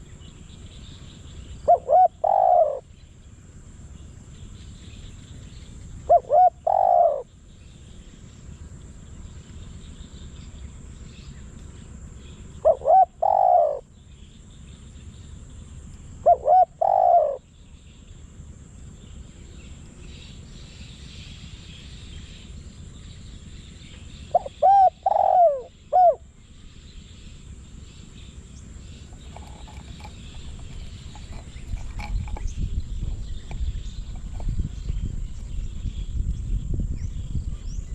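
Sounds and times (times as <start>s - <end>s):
dove cooing: 1.6s - 2.9s, 6.0s - 7.3s, 12.6s - 13.9s, 16.2s - 17.4s, 24.3s - 26.3s, 29.0s - 35.6s.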